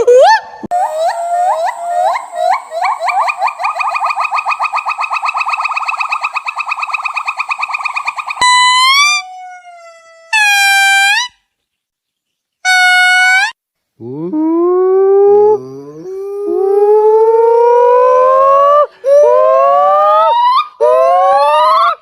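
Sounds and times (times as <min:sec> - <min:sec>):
primate whistle-like calls: 0:00.1 - 0:09.3
long clear primate calls: 0:00.2 - 0:11.2.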